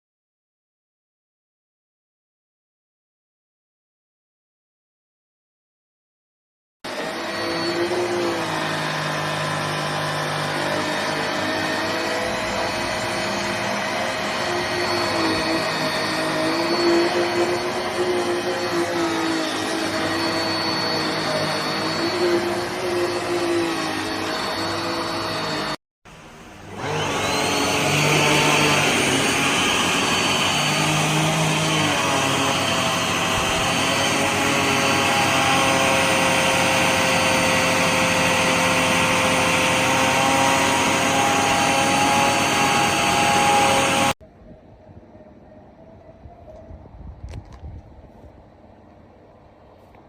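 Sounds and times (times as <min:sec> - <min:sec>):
vacuum cleaner motor whine: 0:06.9 - 0:25.8, 0:26.4 - 0:44.2.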